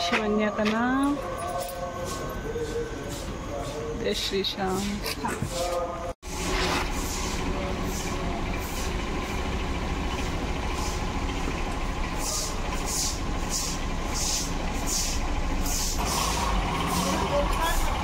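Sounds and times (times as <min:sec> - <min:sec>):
car engine idling: 0:06.2 - 0:18.0.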